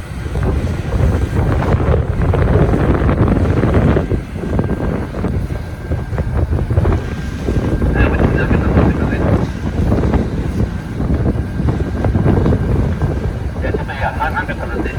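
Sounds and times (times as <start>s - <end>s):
deep rumble: 0.0s - 14.9s
wind buffeting microphone: 0.0s - 14.9s
faint steady whine: 5.1s - 10.5s, 11.4s - 14.9s.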